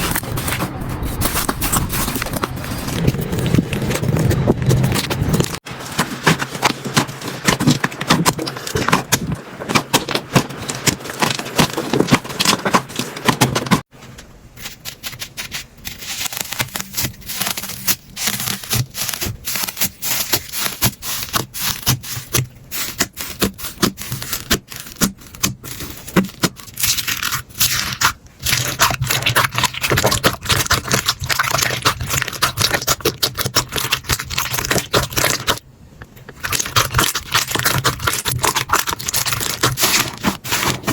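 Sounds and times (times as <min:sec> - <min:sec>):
slime crackling and popping: 0:15.9 - 0:35.6, 0:36.3 - 0:40.9.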